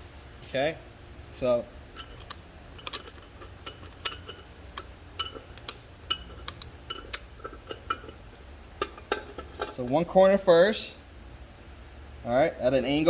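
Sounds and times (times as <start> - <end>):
steel gears clinking: 1.9 - 10.0.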